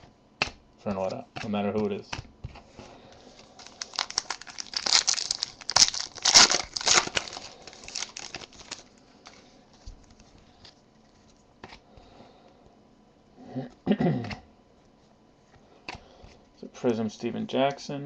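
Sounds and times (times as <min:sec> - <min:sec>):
foil wrapper tearing and crinkling: 0:03.4 - 0:09.4.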